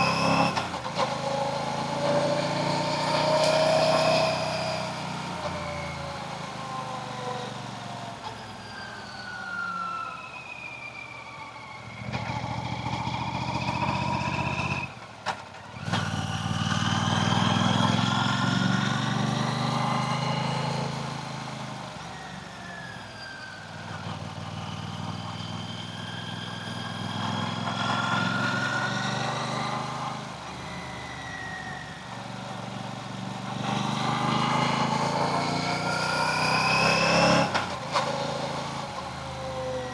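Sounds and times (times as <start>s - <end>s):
motorcycle engine droning: 23.8s - 39.9s
traffic passing: 34.7s - 39.9s.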